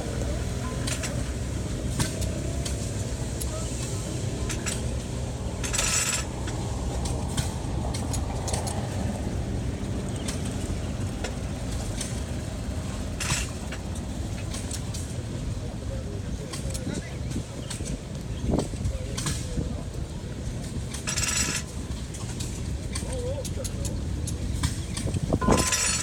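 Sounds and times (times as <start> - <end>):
tractor engine running: 0.0 - 16.8, 20.0 - 26.0
metallic clinks and rattles: 5.6 - 6.3, 20.9 - 21.7, 25.0 - 26.0.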